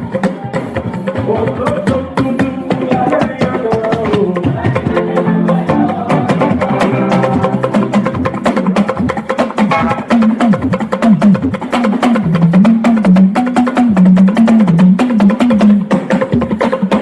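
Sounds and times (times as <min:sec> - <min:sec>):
instruments playing: 0:00.0 - 0:16.0
clicking percussion beat: 0:00.0 - 0:17.0
choir singing: 0:04.4 - 0:08.2.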